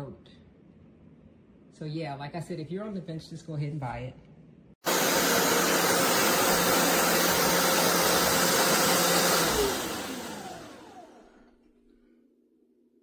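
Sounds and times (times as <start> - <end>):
suction motor whine: 4.8 - 11.5.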